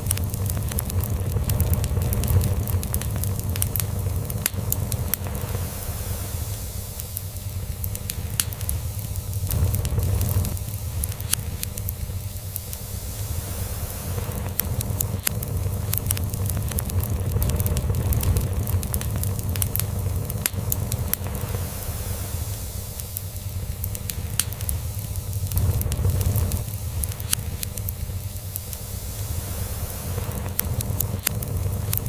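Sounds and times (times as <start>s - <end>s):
log fire crackling: 0.0s - 32.0s.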